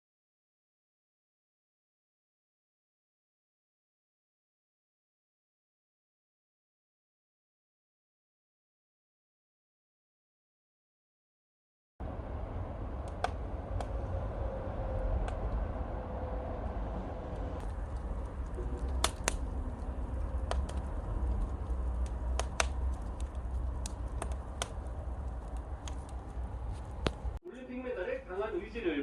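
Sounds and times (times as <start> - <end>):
wood fire crackling: 12.0 - 28.8.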